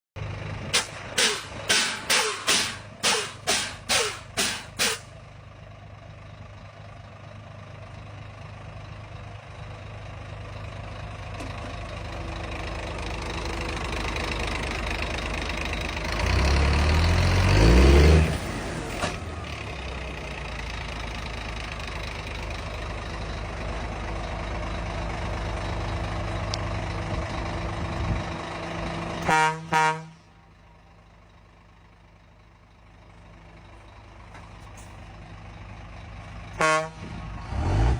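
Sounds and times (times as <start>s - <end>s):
toy truck engine sound: 0.7s - 5.1s
horn toots: 29.2s - 30.3s, 36.6s - 37.2s.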